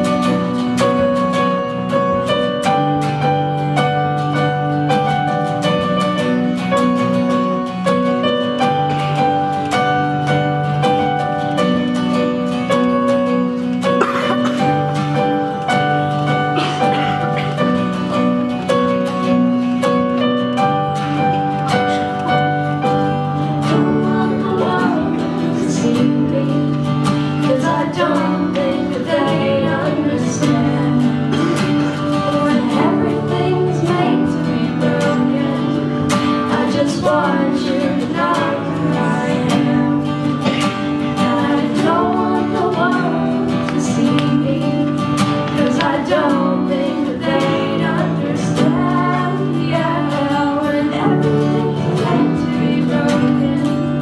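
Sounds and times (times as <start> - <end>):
acoustic guitar music: 0.0 - 54.0.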